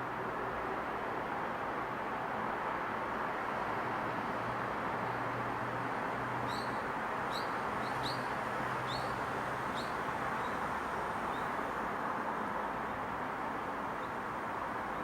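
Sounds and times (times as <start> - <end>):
small bird chirping: 9.7 - 10.6.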